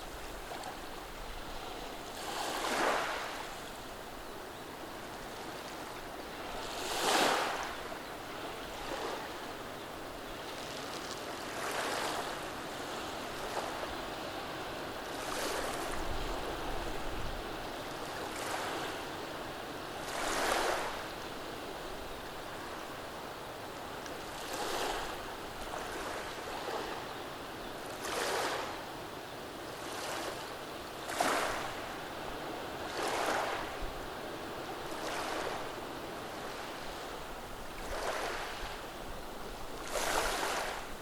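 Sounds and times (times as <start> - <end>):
waves washing over stones: 36.5 - 38.8, 39.4 - 41.0.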